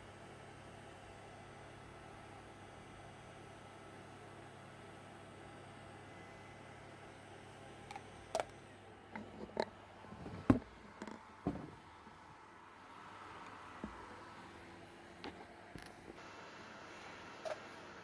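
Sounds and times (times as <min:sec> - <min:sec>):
low steady hiss: 0:09.9 - 0:18.0.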